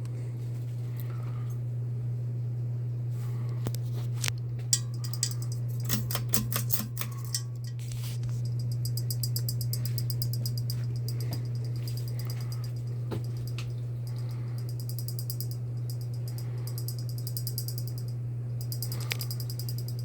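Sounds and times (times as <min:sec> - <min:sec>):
ceiling fan motor hum: 0:00.0 - 0:20.0
fast even ticking: 0:04.8 - 0:07.8, 0:08.5 - 0:20.0
sharp clicks: 0:04.8 - 0:07.8.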